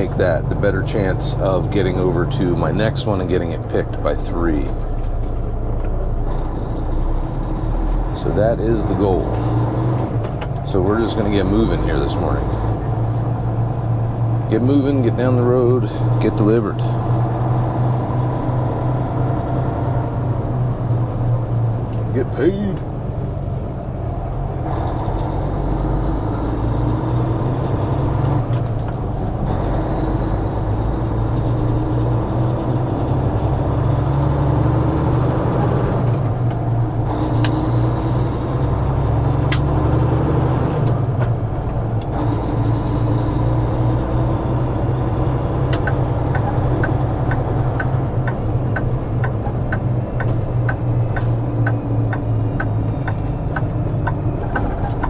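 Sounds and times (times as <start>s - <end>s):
truck diesel engine pulling: 0.0s - 55.0s
regular ticking: 41.6s - 55.0s.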